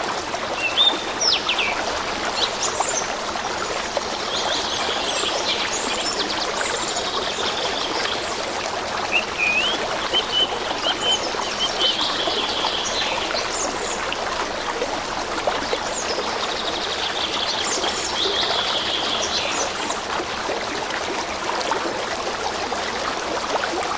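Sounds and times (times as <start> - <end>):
stream of water running: 0.0 - 23.9
small birds chirping: 4.3 - 14.0.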